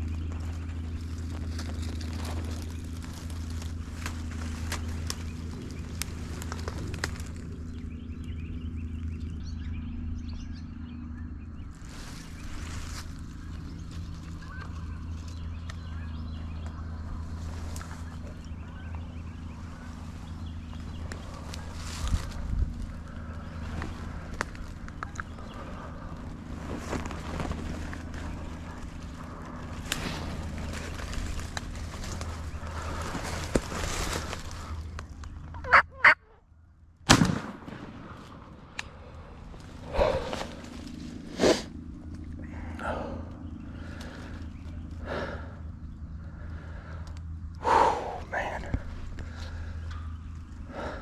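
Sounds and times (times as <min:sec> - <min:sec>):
small birds chirping: 0:00.0 - 0:36.9, 0:38.3 - 0:51.0
low droning hum: 0:00.0 - 0:51.0
turkeys calling: 0:11.8 - 0:36.7
light ticks: 0:47.0 - 0:47.6.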